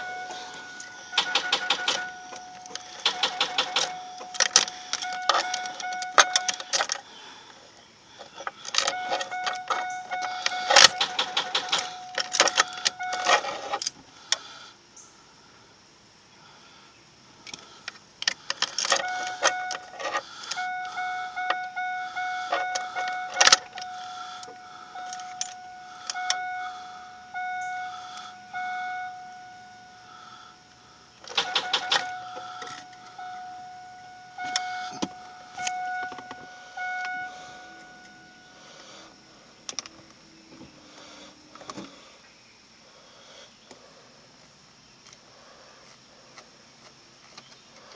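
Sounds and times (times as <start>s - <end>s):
steady electronic chime: 0.0s - 6.6s, 31.5s - 38.6s
rapid starter clicking: 0.0s - 7.0s, 8.5s - 14.4s, 31.2s - 33.2s.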